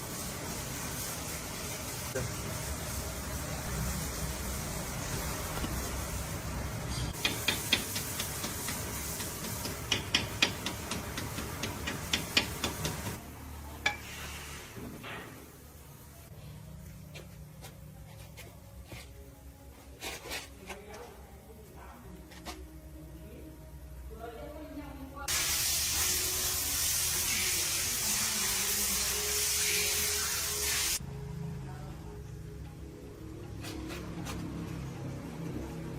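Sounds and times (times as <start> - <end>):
loud hiss of spraying air: 0.0 - 13.2, 14.0 - 15.0, 25.3 - 31.0.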